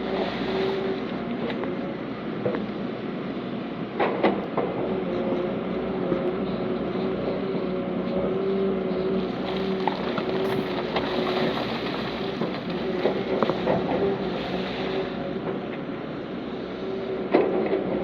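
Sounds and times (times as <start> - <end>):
heavy diesel machinery running: 4.7 - 14.3.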